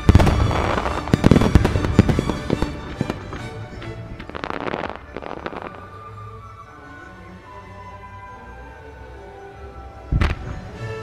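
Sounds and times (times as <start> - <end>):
fireworks banging: 0.0 - 5.9
fireworks crackling: 0.0 - 6.1
music: 0.0 - 11.0.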